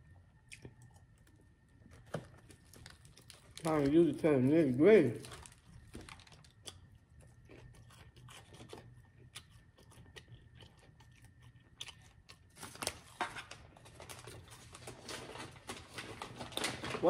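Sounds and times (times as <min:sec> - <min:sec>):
chewing crispy food: 0:00.0 - 0:17.0.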